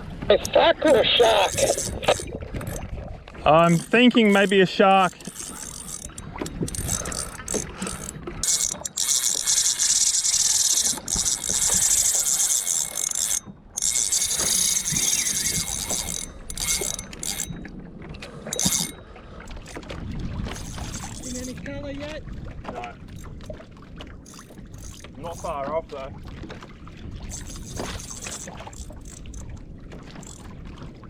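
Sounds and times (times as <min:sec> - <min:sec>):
fishing reel drag clicking: 0:00.9 - 0:02.9, 0:03.6 - 0:17.6, 0:18.4 - 0:19.9, 0:20.5 - 0:21.7, 0:23.1 - 0:23.4, 0:24.2 - 0:25.6, 0:27.3 - 0:29.6, 0:30.2 - 0:30.5.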